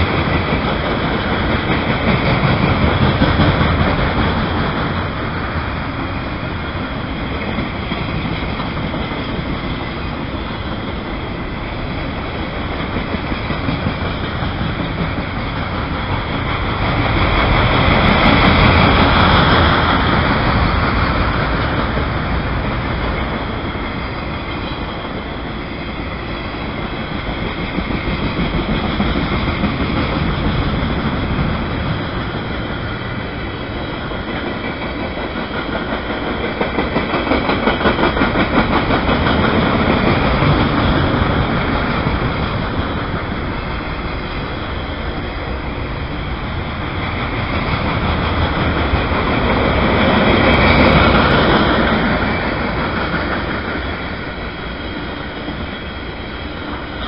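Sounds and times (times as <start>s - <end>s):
freight train rolling rumble: 0.0s - 57.0s.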